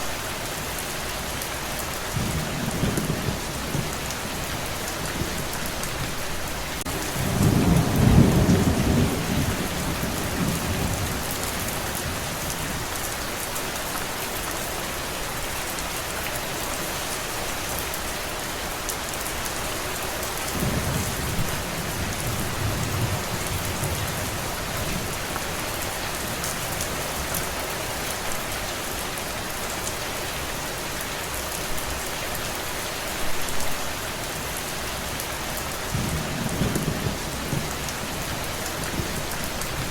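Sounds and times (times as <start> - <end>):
steady rain falling: 0.0 - 39.9
rolling thunder: 6.9 - 12.4, 20.5 - 26.8, 35.9 - 39.9.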